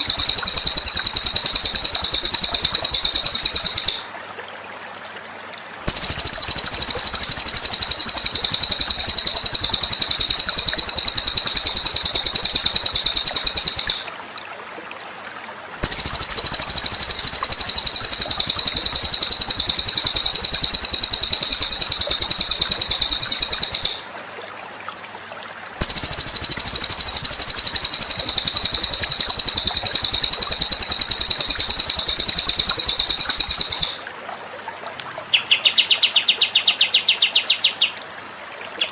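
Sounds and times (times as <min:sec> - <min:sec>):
fast high bird trill: 0:00.0 - 0:04.1, 0:05.9 - 0:14.1, 0:15.8 - 0:24.0, 0:25.8 - 0:34.0.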